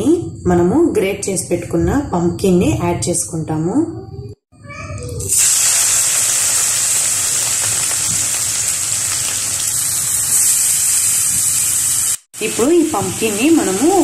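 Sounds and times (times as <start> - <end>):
pumpkin sizzling in a pan: 5.2 - 14.0.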